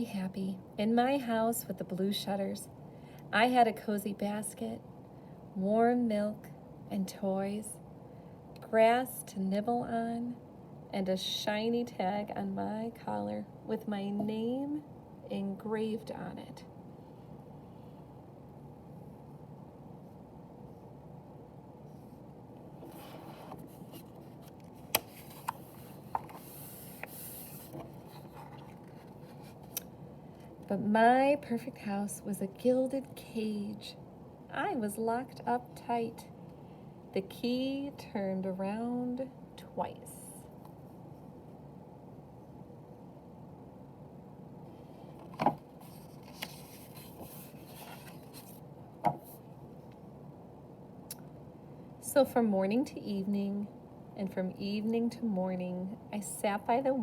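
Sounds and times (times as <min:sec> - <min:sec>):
low room hum: 0:00.0 - 0:57.0
paper rustling: 0:22.8 - 0:29.8, 0:45.1 - 0:48.6.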